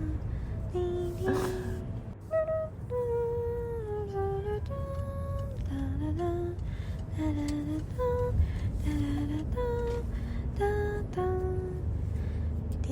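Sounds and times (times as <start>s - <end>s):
person humming a melody: 0.0s - 6.6s
steady low rumble: 0.0s - 12.9s.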